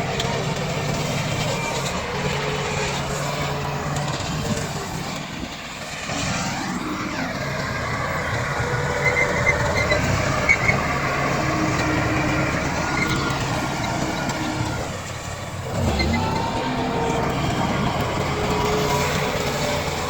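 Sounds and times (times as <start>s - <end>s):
bulldozer diesel engine: 0.0s - 20.0s
high squeaks of steel tracks: 6.0s - 20.0s.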